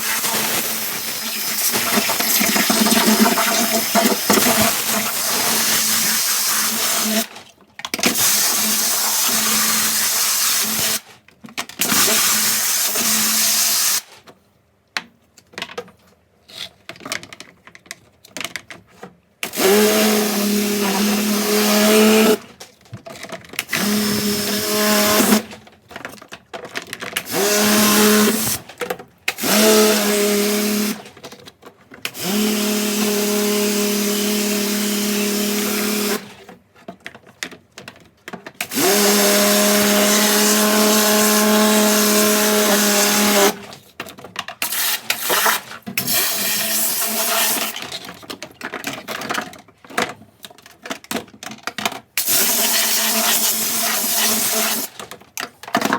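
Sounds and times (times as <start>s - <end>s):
pressure washer pump humming: 0.0s - 7.2s
water jet hissing: 0.0s - 7.2s.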